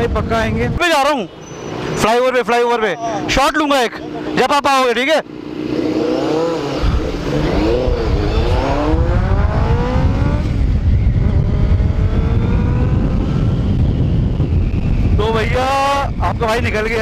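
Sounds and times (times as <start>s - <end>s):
wind on microphone: 0.0s - 0.9s, 5.9s - 17.0s
motorcycle accelerating: 2.9s - 17.0s.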